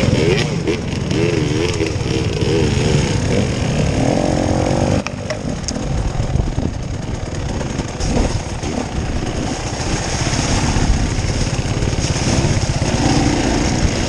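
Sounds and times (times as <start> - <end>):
off-road vehicle engine revving: 0.0 - 14.0.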